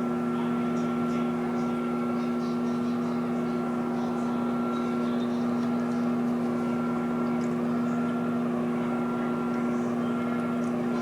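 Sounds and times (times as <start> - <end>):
microwave oven hum: 0.0 - 11.0.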